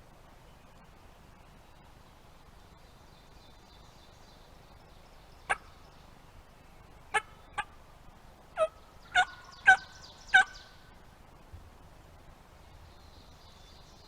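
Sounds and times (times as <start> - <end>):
turkey yelps: 8.6 - 10.6.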